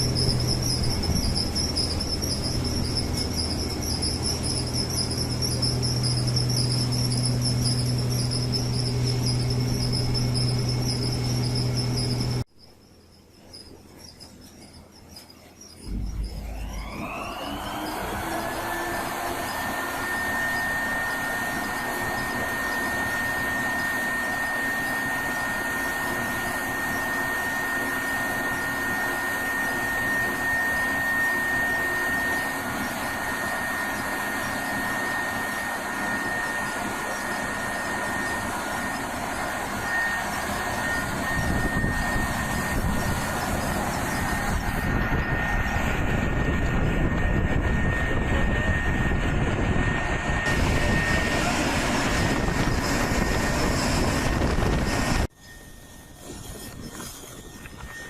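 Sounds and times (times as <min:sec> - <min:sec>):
machine running: 0:00.0 - 0:12.5, 0:15.8 - 0:58.0
thin high whine: 0:00.0 - 0:58.0
low rumble: 0:15.9 - 0:17.7.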